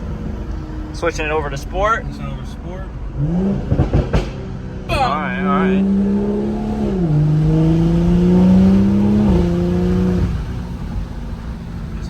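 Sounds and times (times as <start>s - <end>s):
car engine accelerating: 3.1s - 12.0s.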